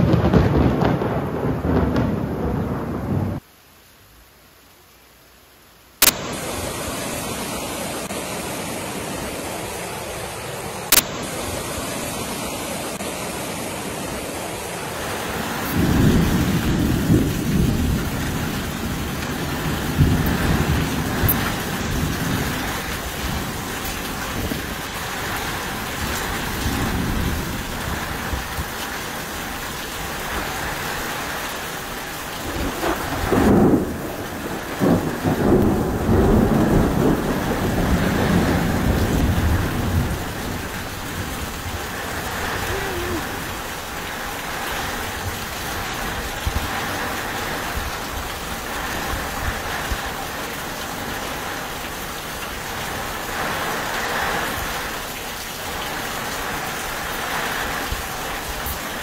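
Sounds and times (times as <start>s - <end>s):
thunder rumbling: 0.0s - 3.4s, 15.1s - 28.8s, 32.3s - 50.4s
heavy rain pouring: 0.0s - 59.0s.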